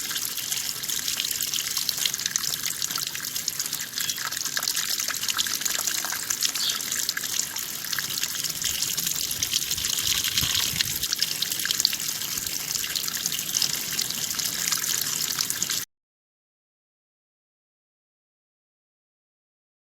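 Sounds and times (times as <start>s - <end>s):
running water rushing and trickling: 0.0s - 15.9s.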